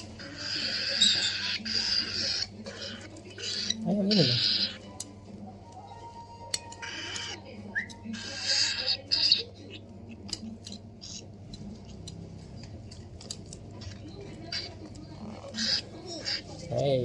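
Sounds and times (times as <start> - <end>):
baby parrot begging calls: 0.2 - 4.8, 6.8 - 7.4, 8.1 - 9.8, 14.5 - 16.5.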